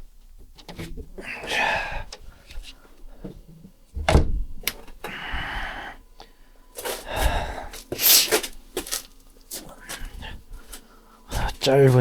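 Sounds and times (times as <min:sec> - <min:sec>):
heavy thump: 0:04.0 - 0:04.6.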